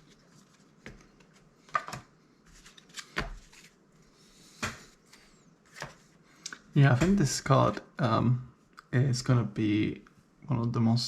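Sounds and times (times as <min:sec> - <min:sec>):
trading cards slapping and clicking: 0:00.8 - 0:03.7.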